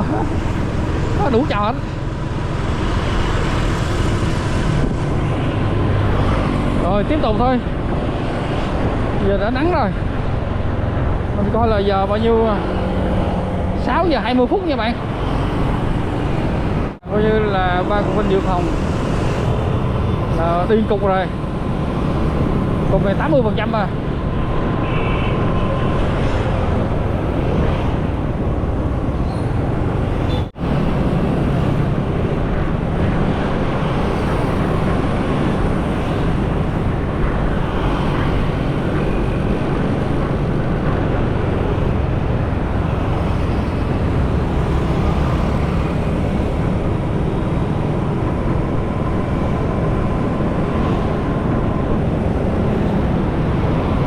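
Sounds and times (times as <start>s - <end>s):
tyres on road: 0.0s - 54.0s
wind buffeting microphone: 0.0s - 54.0s.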